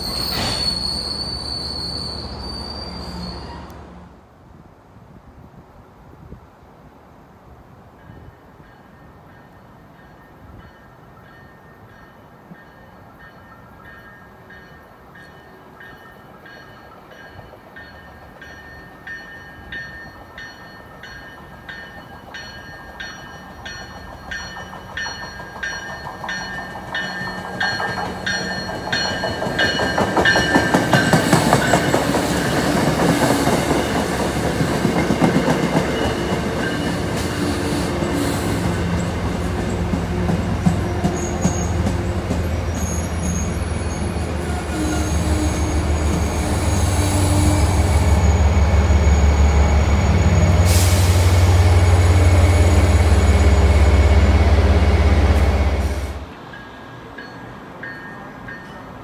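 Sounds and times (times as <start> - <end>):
train bell ringing: 8.0 - 33.0, 34.9 - 37.3, 51.9 - 59.0.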